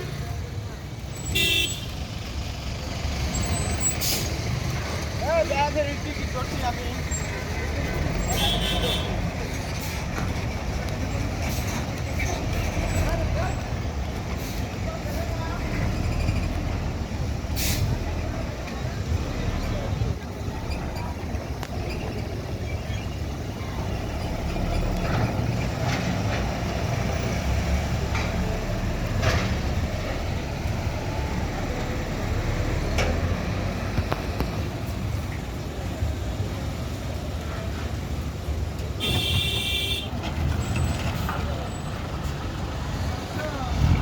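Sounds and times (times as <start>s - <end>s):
heavy vehicle engines rumbling: 0.0s - 44.0s
short high horn toot: 39.0s - 40.1s.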